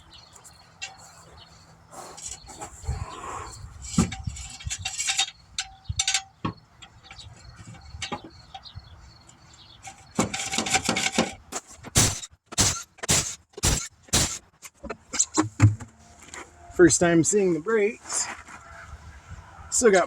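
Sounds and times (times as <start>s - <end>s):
tools and metal parts clanking: 0.4s - 1.4s, 3.8s - 15.9s
rattling and scraping: 0.4s - 16.5s
sharp bursts: 12.0s - 14.5s.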